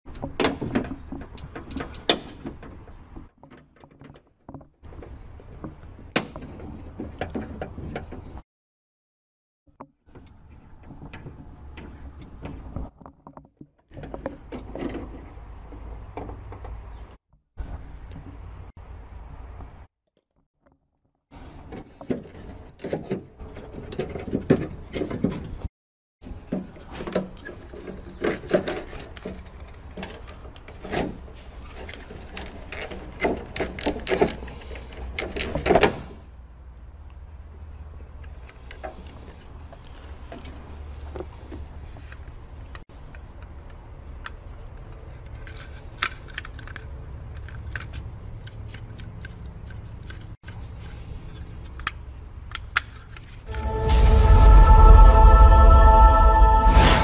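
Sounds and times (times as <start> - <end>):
low rumbling handling noise: 9.7 - 19.9
car door parts clicking and rattling: 35.2 - 36.2.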